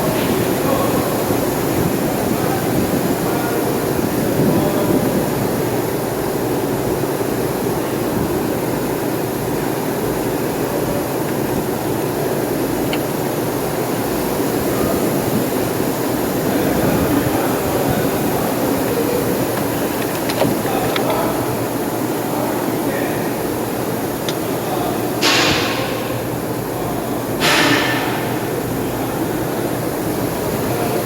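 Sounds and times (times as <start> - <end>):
car engine running: 17.7 - 22.3.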